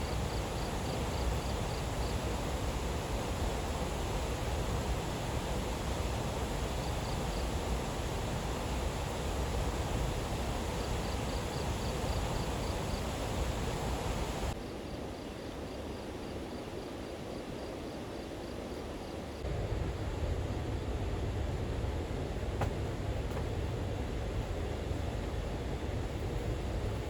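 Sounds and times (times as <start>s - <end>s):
high insect chirp: 0.0s - 19.5s.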